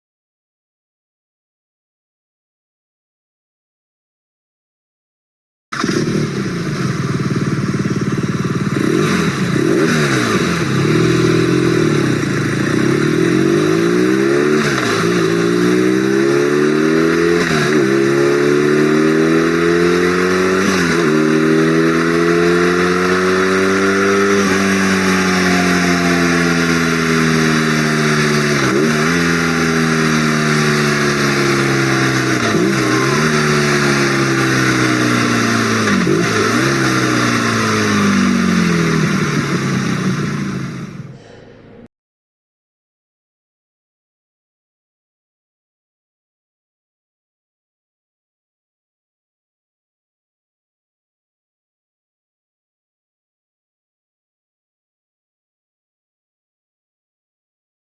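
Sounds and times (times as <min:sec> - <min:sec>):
motorcycle engine shifting gears: 0:05.7 - 0:41.3.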